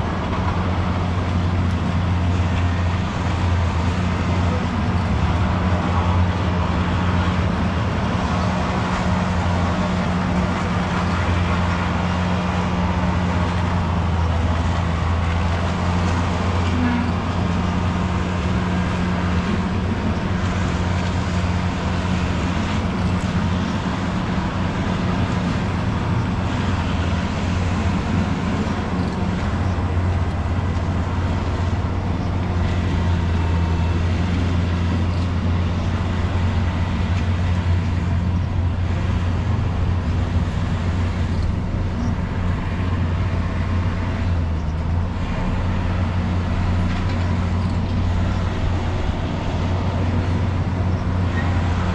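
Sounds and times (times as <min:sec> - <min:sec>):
train rumbling past: 0:00.0 - 0:51.9.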